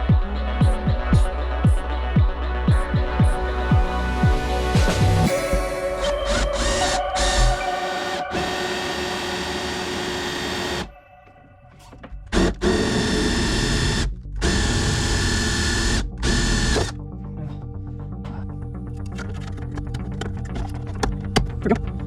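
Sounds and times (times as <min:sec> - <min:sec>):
power drill boring through plastic: 0:08.3 - 0:10.9, 0:12.4 - 0:16.9.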